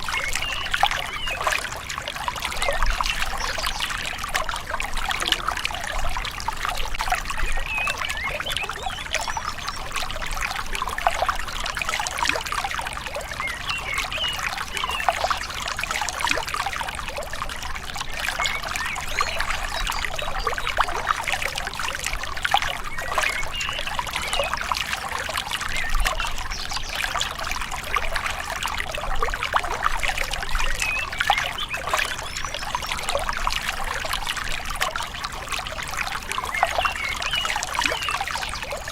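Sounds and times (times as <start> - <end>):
river water trickling and splashing: 0.0 - 38.9.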